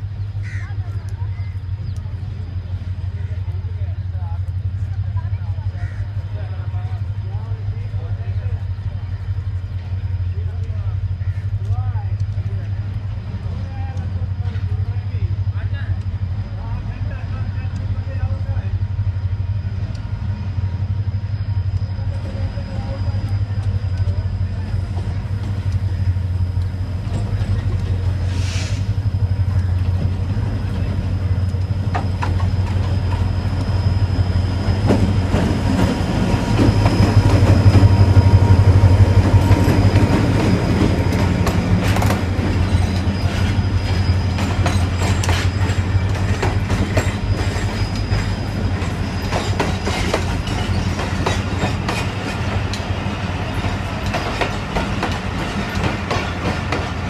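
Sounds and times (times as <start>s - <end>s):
locomotive engine drone: 0.0s - 57.0s
wheels clicking over rail joints: 34.6s - 57.0s.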